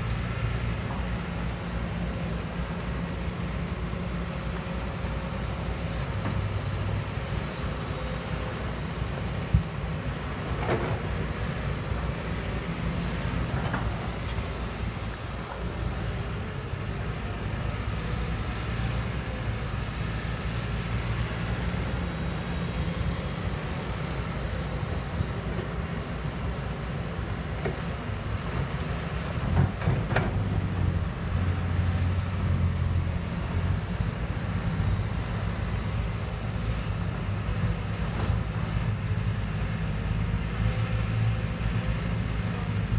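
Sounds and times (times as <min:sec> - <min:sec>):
excavator diesel engine running: 0:00.0 - 0:42.9
metal clanks and knocks: 0:29.5 - 0:30.6.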